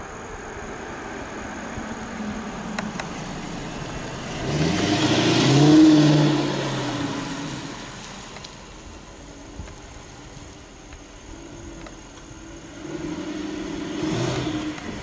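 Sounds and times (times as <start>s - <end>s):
car engine driving past: 0.8s - 8.8s.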